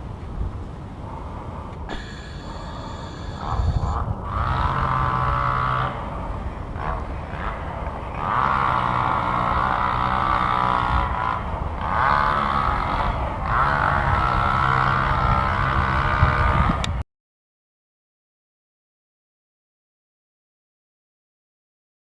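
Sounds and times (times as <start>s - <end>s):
mechanical motor drone: 0.0s - 17.0s.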